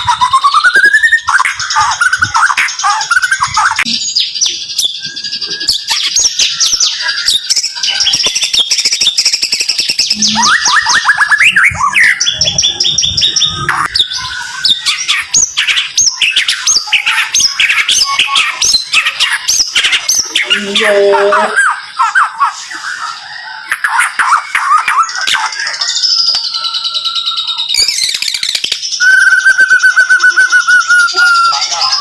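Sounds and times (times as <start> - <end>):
songbird whistling and chirping: 0.0 - 32.0.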